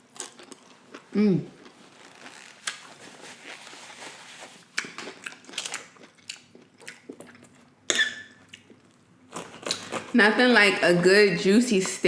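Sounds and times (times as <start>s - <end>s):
chewing with wet smacks: 4.7s - 9.0s.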